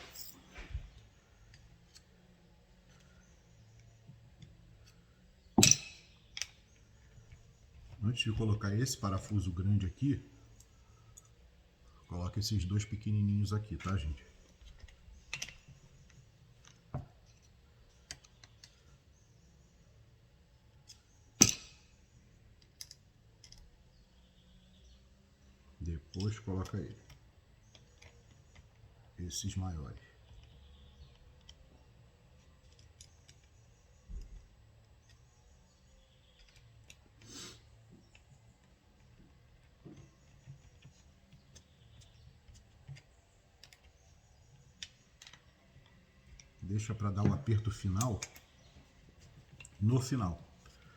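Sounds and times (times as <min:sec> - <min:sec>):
small metallic clicks: 0:00.0 - 0:07.6, 0:13.8 - 0:19.1, 0:20.8 - 0:23.9, 0:25.8 - 0:28.9, 0:30.2 - 0:46.6
low steady hum: 0:00.0 - 0:50.9
metallic clicks of bolts and tools: 0:05.6 - 0:07.5, 0:13.8 - 0:18.8, 0:20.8 - 0:22.0.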